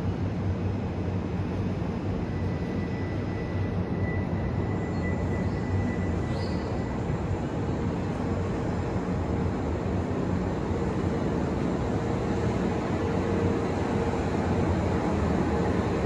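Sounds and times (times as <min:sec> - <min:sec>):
train hum and rumble: 0:00.0 - 0:16.0.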